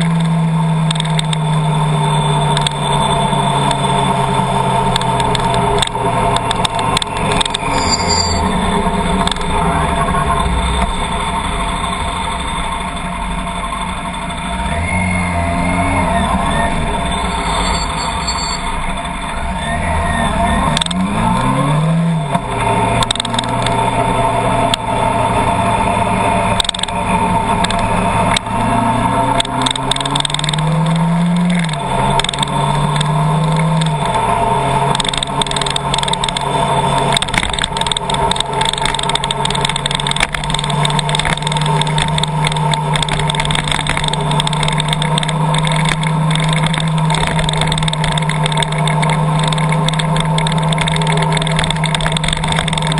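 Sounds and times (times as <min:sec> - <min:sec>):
sharp ticks: 0:00.0 - 0:09.6, 0:23.0 - 0:23.8, 0:26.6 - 0:27.0, 0:27.6 - 0:28.7, 0:29.3 - 0:34.2, 0:34.8 - 0:52.9
car engine accelerating: 0:00.0 - 0:52.9.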